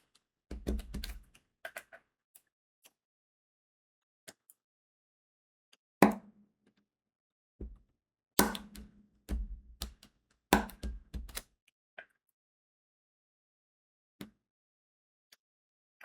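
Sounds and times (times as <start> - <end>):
drill pen tapping and clicking: 0.5 - 1.3, 8.4 - 11.5.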